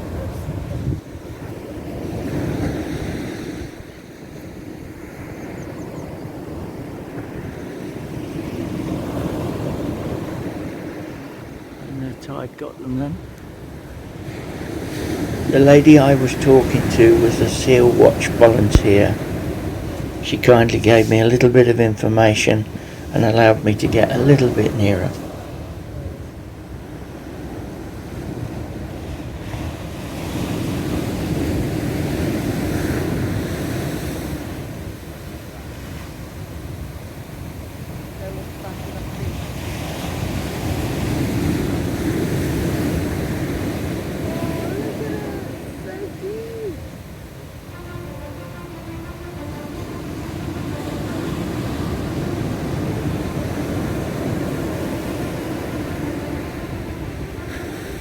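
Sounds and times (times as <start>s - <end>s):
wind buffeting microphone: 0.0s - 21.5s
surf washing onto rocky shore: 6.3s - 58.0s.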